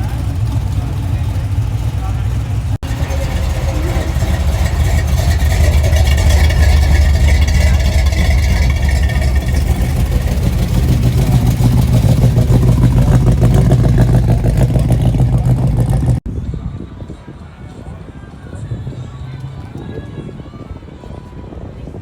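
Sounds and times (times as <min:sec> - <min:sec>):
car engine rumbling: 0:00.0 - 0:16.3.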